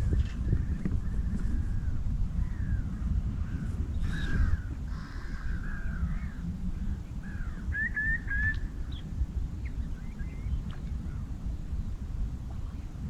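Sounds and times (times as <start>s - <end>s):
steady low rumble: 0.0s - 13.0s
wild birds calling: 2.4s - 11.4s.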